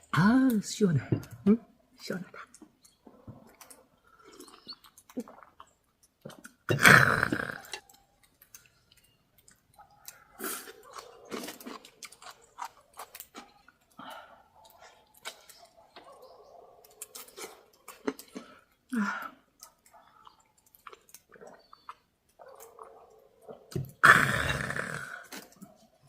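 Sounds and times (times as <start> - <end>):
chewing: 2.3 - 6.7, 7.3 - 26.0
wet mouth clicks: 2.4 - 13.7.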